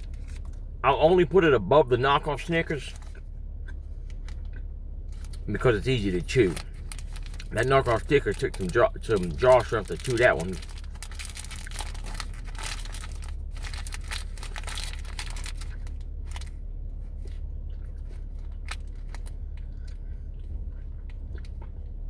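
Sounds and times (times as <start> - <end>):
steady low hum: 0.0 - 22.0
wrapper crinkling: 5.1 - 16.6.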